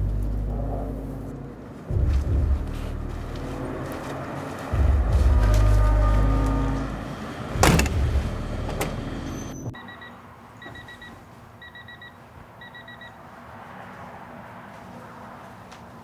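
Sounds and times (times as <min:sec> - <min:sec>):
low rumble: 0:00.0 - 0:08.7
heavy thump: 0:07.6 - 0:09.0.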